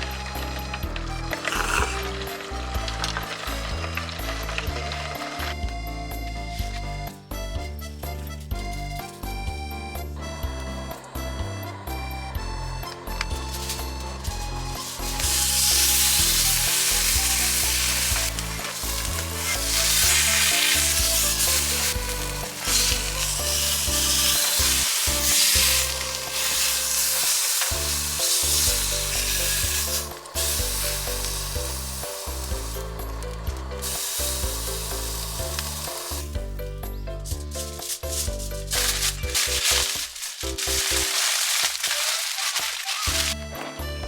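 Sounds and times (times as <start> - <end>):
background music: 0.0 - 44.0
food sizzling in a frying pan: 14.8 - 36.4, 37.8 - 43.4.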